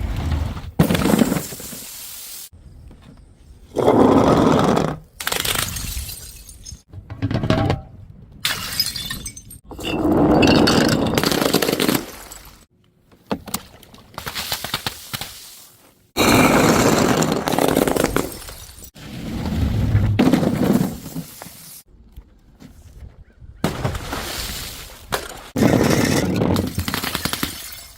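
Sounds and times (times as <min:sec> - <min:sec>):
glass bottles shattering: 0:05.4 - 0:06.8, 0:08.4 - 0:12.6, 0:25.6 - 0:27.9.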